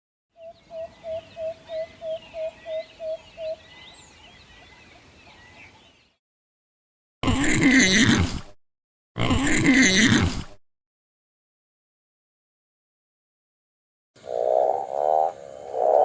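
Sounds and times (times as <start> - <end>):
small birds chirping: 0.4 - 6.2
loud low animal grunt: 7.2 - 8.6, 9.2 - 10.6
owl hooting: 14.2 - 16.0.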